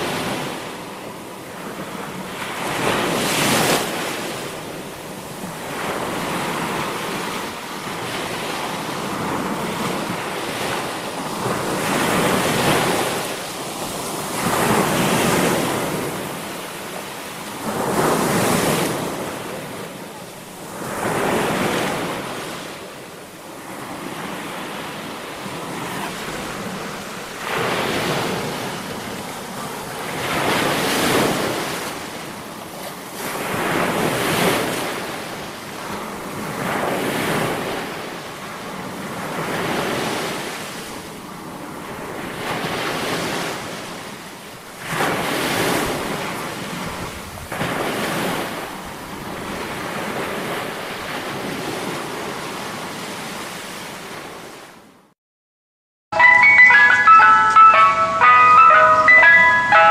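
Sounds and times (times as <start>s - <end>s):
ocean surf breaking: 0.0s - 32.3s, 56.2s - 59.9s.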